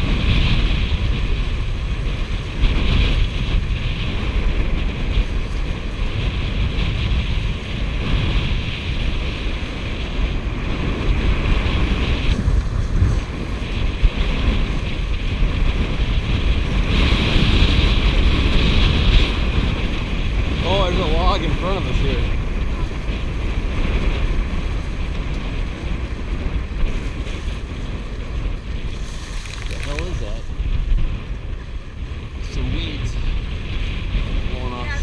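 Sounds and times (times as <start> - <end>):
water rushing along hulls: 0.0 - 35.0
wind buffeting microphone: 0.0 - 35.0.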